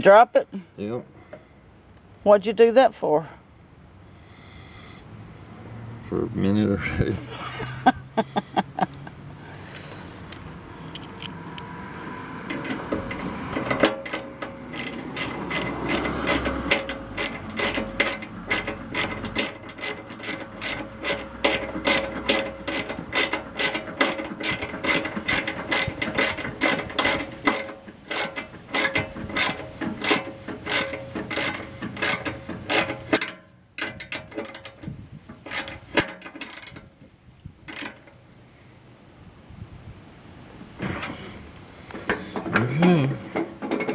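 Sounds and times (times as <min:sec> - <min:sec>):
ratchet wrench clicking: 0:12.5 - 0:36.9, 0:37.7 - 0:38.2.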